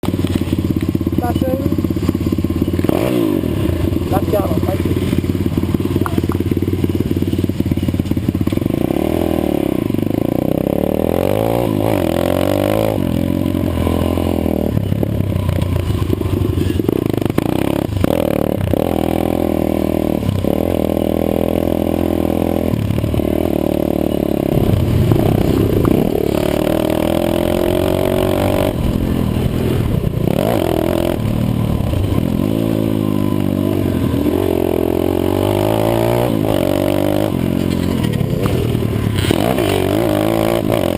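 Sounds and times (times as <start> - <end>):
pit bike engine revving: 0.0 - 40.9.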